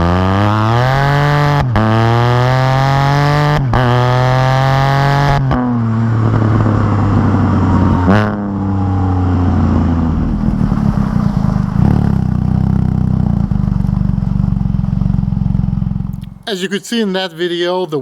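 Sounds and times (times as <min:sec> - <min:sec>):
motorcycle engine running: 0:05.5 - 0:11.0, 0:11.8 - 0:16.2.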